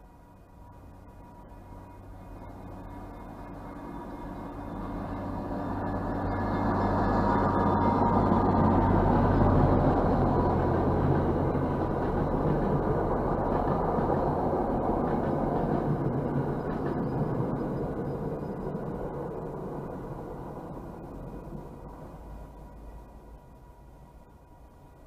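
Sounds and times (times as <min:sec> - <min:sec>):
train coaches rumbling on rails: 0:00.0 - 0:25.0.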